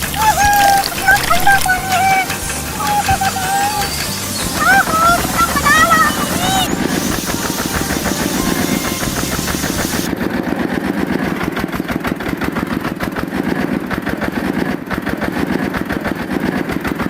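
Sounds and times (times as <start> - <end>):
high hiss: 0.0 - 10.1
engine running with put-put: 0.0 - 17.0.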